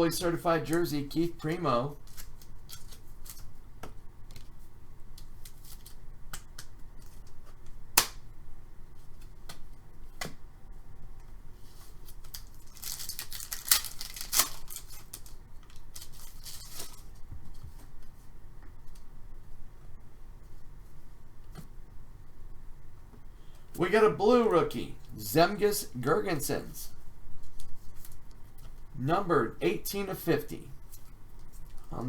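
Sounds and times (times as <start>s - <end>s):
trading cards clicking and snapping: 5.1s - 8.2s
wrapper tearing and crinkling: 12.1s - 17.1s.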